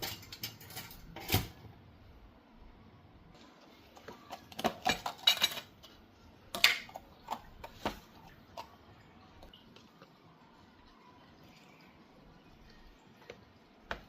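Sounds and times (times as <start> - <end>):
dishes and cutlery clattering: 0.0 - 1.6, 4.3 - 6.0.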